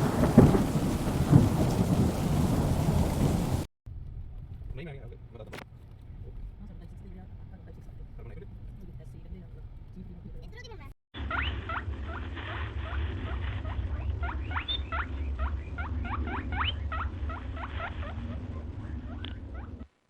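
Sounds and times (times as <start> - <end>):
steady low rumble: 11.8 - 19.8
squeaky chirps: 13.6 - 18.2.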